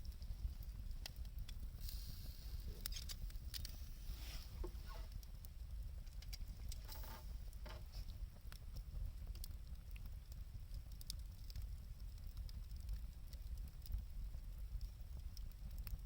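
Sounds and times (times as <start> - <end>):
low steady rumble: 0.0 - 16.0
wood fire crackling and popping: 0.0 - 16.0
whistling hisses from burning wood: 0.1 - 8.3.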